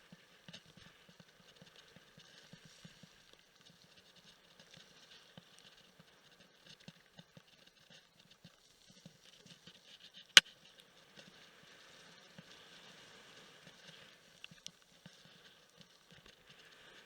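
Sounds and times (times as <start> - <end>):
small ticks: 13.6 - 17.0.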